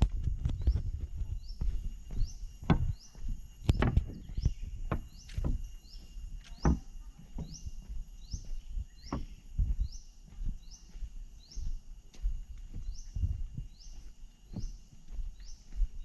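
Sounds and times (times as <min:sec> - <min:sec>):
footsteps thumping: 0:00.0 - 0:11.0
insects chirping: 0:00.0 - 0:16.0
high insect buzz: 0:00.6 - 0:16.0.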